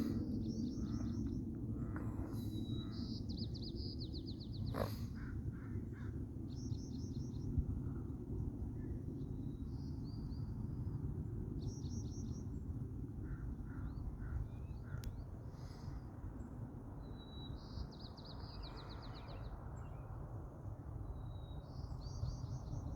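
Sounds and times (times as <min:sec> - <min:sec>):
steady low rumble: 0:00.0 - 0:17.0
songbirds chirping and trilling: 0:00.0 - 0:22.9.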